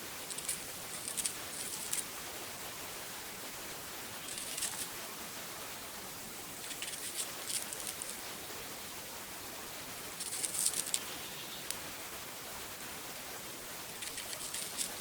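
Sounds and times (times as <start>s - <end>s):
dry crackling and rustling: 0.0s - 2.2s, 4.2s - 5.0s, 6.6s - 8.2s, 10.1s - 11.8s, 14.0s - 15.0s.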